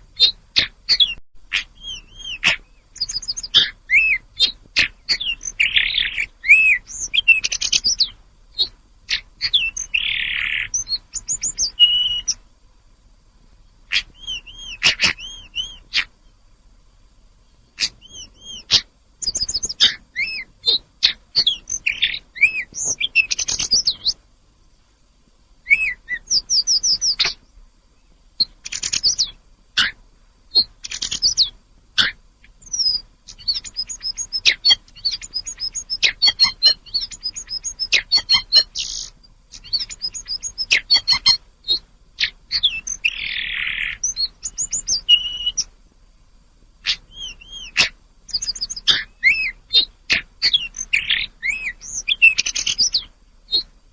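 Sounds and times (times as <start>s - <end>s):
songbird singing high whistles: 0.0s - 12.4s, 13.9s - 16.4s, 17.5s - 24.2s, 25.6s - 27.4s, 28.4s - 45.7s, 46.8s - 53.7s.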